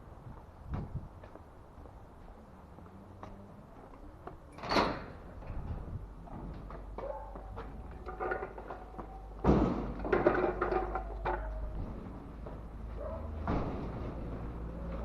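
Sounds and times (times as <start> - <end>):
knocks and thuds: 9.4 - 10.7, 13.4 - 14.5.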